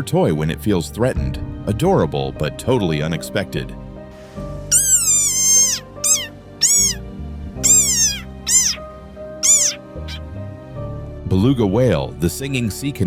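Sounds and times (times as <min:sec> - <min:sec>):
background music: 0:00.0 - 0:13.0
frog squeaking: 0:04.7 - 0:10.4.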